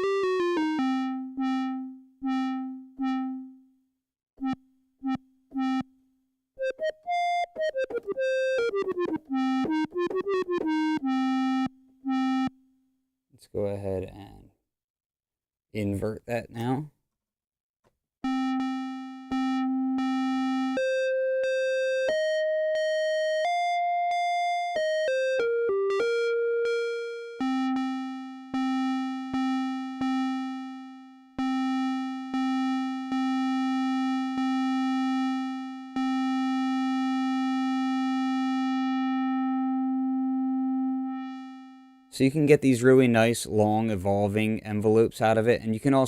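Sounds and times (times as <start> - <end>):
analog synthesizer notes: 0.0 - 3.6, 4.4 - 5.9, 6.6 - 12.6, 18.2 - 43.1.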